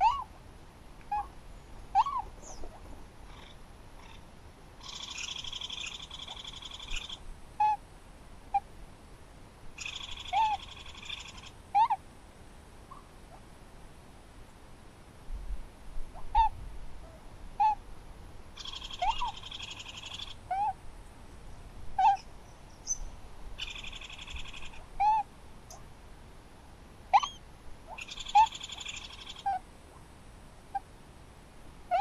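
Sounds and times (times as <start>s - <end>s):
dry rattling bird calls: 4.8s - 7.2s, 9.8s - 11.5s, 18.6s - 20.4s, 23.6s - 24.8s, 27.2s - 29.5s
birds calling hooked notes: 22.0s - 25.8s, 27.2s - 29.6s.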